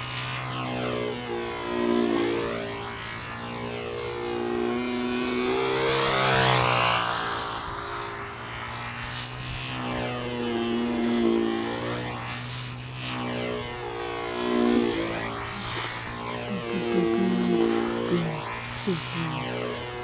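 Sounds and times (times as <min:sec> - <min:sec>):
model aircraft engine running: 0:00.0 - 0:20.0.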